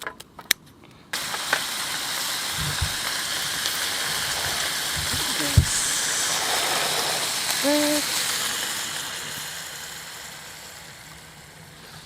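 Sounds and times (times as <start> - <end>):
food sizzling in a hot pan: 1.2 - 12.0
low knocks: 2.6 - 3.1.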